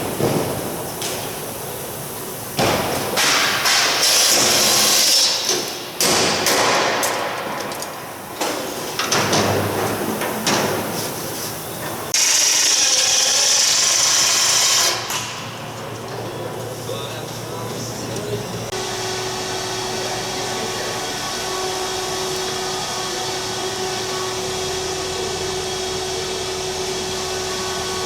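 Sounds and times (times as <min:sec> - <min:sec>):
power tools running: 0:11.6 - 0:28.0.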